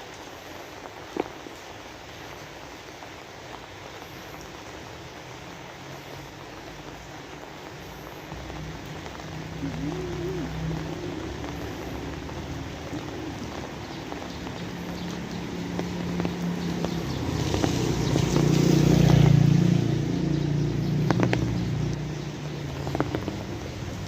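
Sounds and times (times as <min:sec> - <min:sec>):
steady rain: 0:00.0 - 0:24.0
vehicle passing by: 0:08.4 - 0:24.0.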